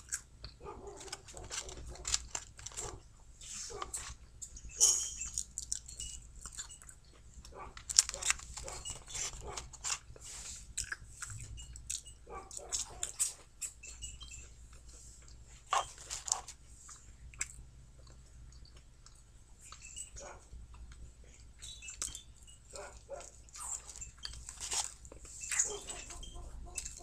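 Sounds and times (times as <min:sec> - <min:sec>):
chewing french fries: 0:00.0 - 0:27.0
paper carton rustling: 0:00.8 - 0:04.2, 0:07.8 - 0:10.6, 0:24.4 - 0:25.0.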